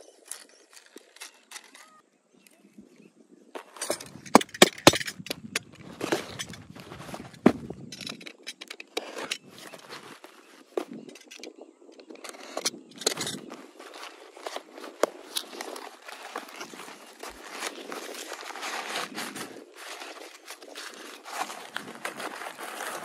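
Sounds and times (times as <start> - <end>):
packaging rustling: 3.6 - 11.5, 12.2 - 23.0.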